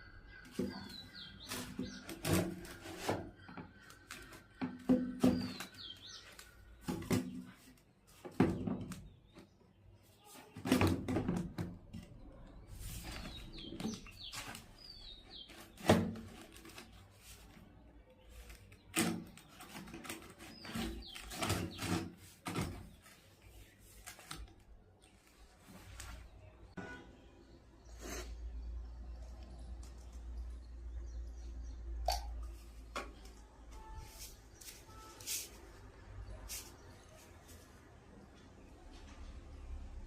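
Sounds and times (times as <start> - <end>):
bird chirps: 0.0 - 6.9
pvc pipe and tools clattering: 0.5 - 7.6, 18.9 - 23.1.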